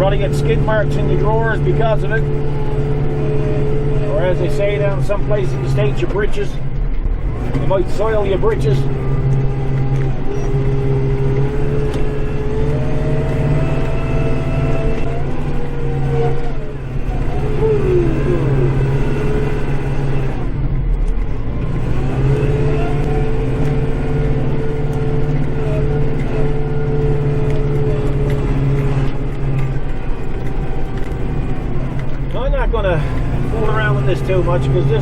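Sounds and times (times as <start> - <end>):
whine dipping in pitch: 0.0 - 20.5
tractor diesel engine running: 0.0 - 35.0.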